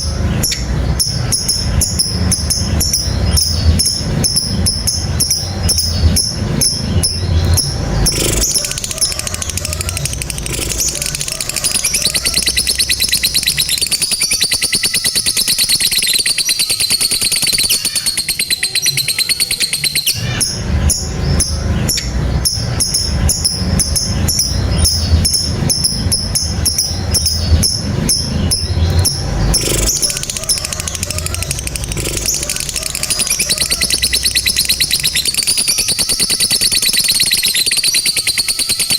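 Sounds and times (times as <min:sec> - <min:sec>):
low deep sound: 0:00.0 - 0:14.2, 0:20.0 - 0:35.6
lovebird chattering trill: 0:00.0 - 0:38.9.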